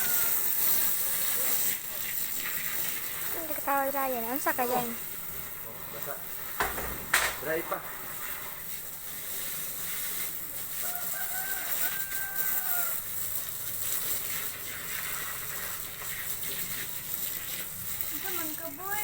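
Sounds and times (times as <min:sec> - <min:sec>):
rooster crowing: 0:00.0 - 0:00.8, 0:10.8 - 0:13.3
background hiss: 0:00.0 - 0:19.0.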